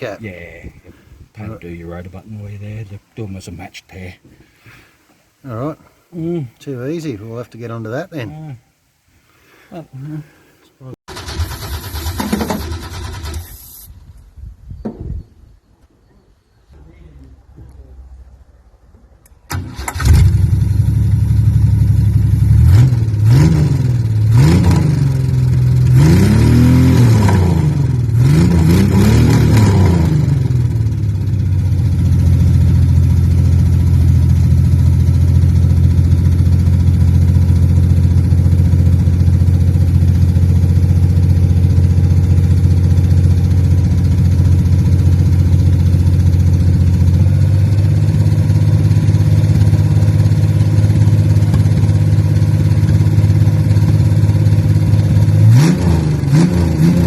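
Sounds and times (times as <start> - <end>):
car engine revving and idling: 20.0 - 57.0.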